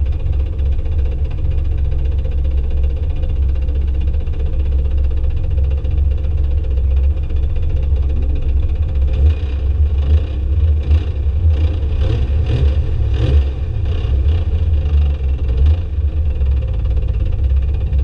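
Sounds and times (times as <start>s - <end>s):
car engine revving hard: 9.2s - 14.7s.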